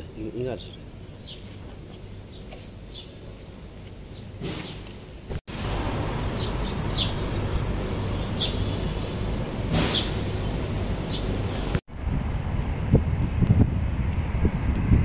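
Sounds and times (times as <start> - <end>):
small birds chirping: 0.2 - 11.8
wind noise: 5.3 - 15.0.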